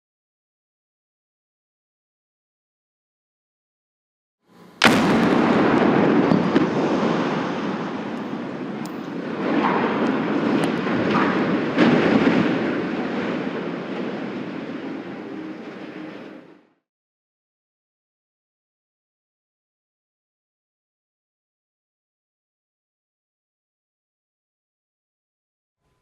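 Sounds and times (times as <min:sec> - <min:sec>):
long loud rumbling noise: 0:04.5 - 0:16.8
explosive blast: 0:04.8 - 0:15.2
explosive cracks: 0:04.8 - 0:15.2.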